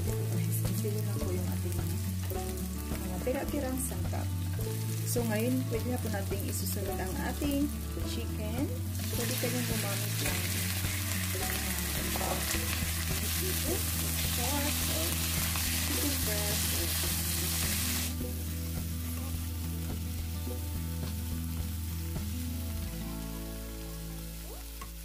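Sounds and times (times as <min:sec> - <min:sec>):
chicken sizzling in hot oil: 0:00.0 - 0:25.0.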